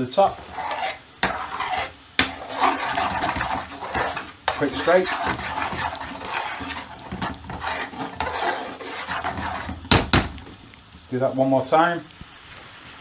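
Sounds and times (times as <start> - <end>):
spoon scraping sauce in a pan: 0.2 - 10.6
spoon knocking on pan: 0.4 - 10.6.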